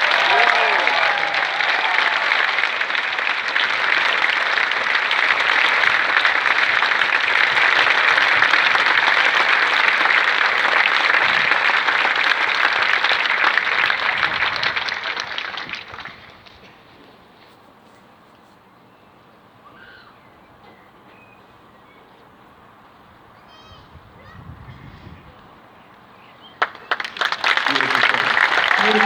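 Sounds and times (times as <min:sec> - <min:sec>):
stadium crowd applauding: 0:00.0 - 0:16.9, 0:26.5 - 0:29.0.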